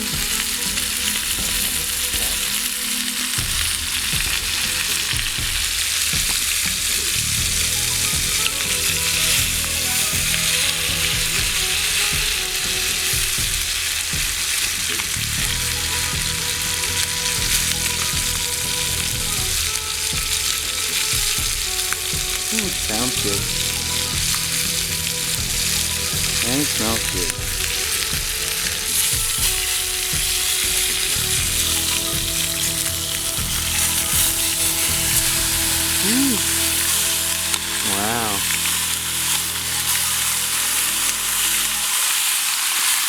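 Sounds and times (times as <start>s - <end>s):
meat sizzling in a skillet: 0.0s - 43.0s.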